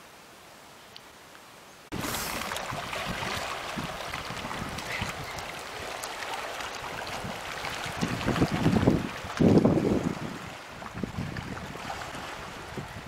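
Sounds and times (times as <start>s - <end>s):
wind on microphone: 1.9s - 5.9s, 6.8s - 13.0s
rushing floodwater: 1.9s - 13.0s.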